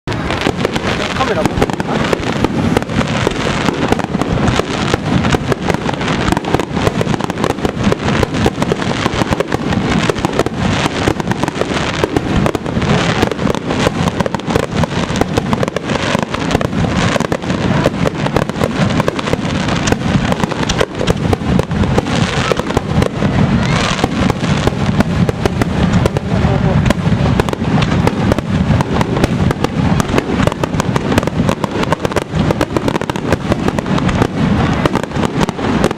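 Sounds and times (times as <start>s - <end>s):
fireworks bangs and crackles: 0.0s - 35.9s.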